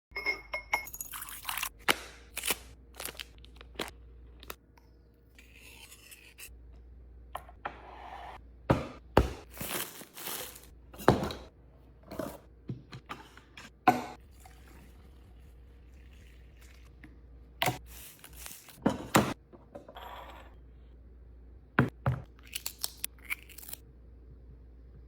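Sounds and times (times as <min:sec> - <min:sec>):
packets rustling and scraping: 0:09.5 - 0:10.7.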